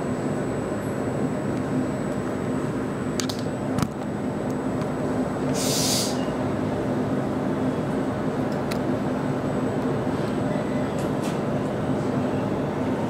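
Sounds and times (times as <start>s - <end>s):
train interior hum: 0.0s - 13.0s
short burst of hiss: 5.5s - 6.2s.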